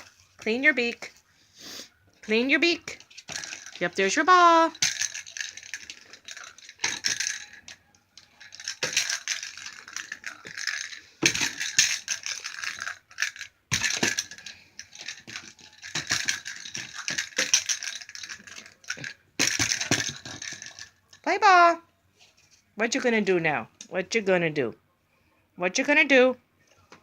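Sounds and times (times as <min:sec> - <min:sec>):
toy ball rattling and clicking: 0:02.2 - 0:21.3.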